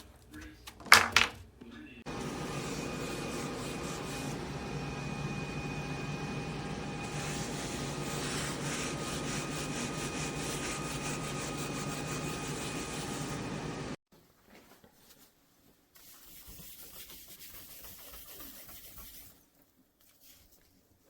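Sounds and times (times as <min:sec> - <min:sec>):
machine whirring hum: 0:02.0 - 0:14.0.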